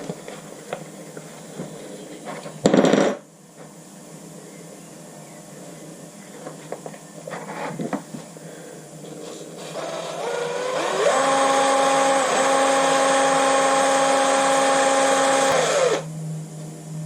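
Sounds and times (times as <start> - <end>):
power drill whine: 9.3 - 16.1.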